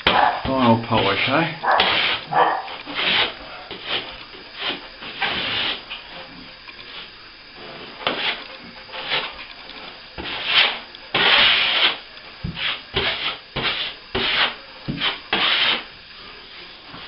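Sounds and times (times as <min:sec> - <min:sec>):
sandpaper rasping on plaster: 0:01.0 - 0:05.8, 0:08.0 - 0:09.3, 0:10.2 - 0:15.9.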